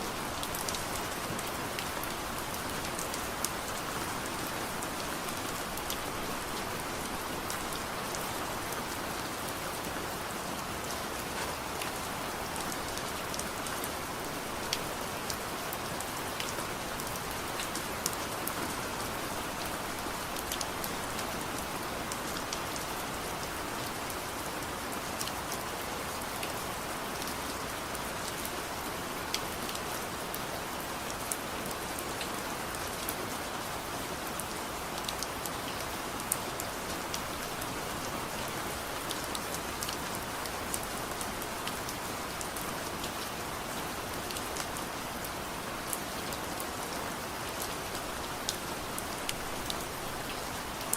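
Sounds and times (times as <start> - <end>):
soft rain falling: 0.0 - 50.9.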